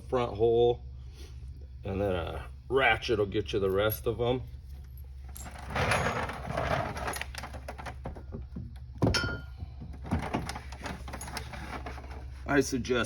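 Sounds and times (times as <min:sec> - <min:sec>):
rustling and scraping of tools: 0:04.5 - 0:08.6, 0:09.2 - 0:13.0.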